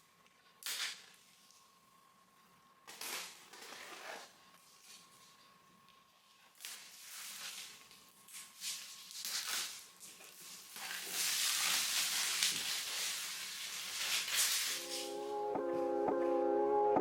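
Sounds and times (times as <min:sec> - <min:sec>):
packaging scraping and rustling: 0:08.4 - 0:15.0.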